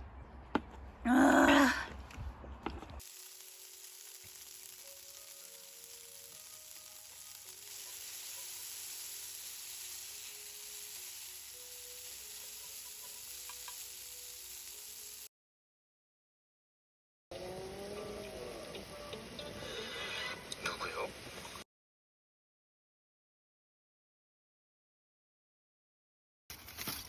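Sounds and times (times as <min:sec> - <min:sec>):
food sizzling on a grill: 0:03.0 - 0:15.3, 0:17.3 - 0:21.6
faint melody: 0:17.3 - 0:20.6.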